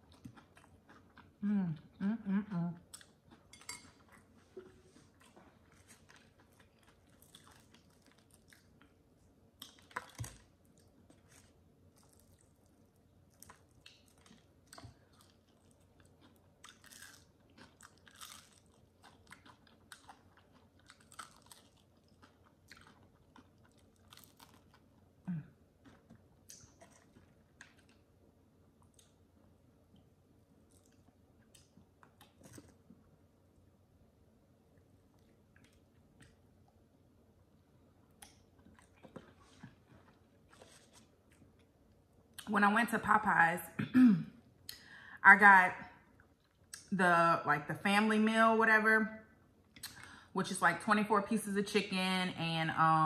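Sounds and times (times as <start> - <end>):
chewing crispy chicken: 0.0 - 2.0, 2.8 - 33.2, 34.7 - 36.8, 38.0 - 42.5.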